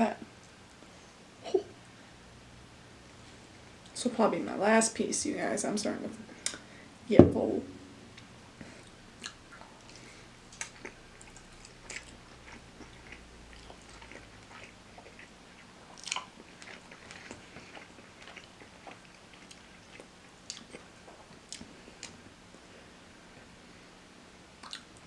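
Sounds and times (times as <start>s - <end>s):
biting and chewing: 9.2s - 22.2s
mouth clicks and smacks: 24.6s - 25.0s.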